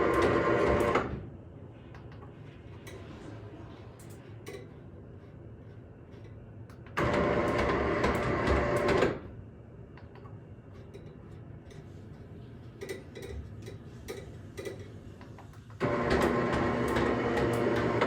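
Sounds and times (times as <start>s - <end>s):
roller shutter motor running: 7.0s - 9.1s, 15.8s - 18.0s.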